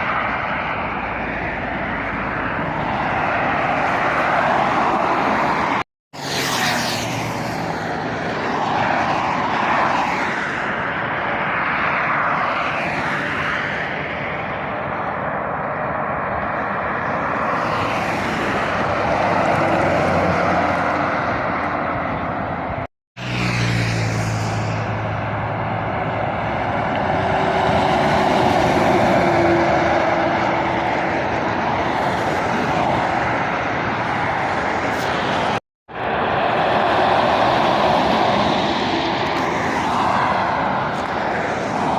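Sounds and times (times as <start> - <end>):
traffic passing at speed: 0.0 - 41.9
heavy engine hum passing: 18.7 - 41.9.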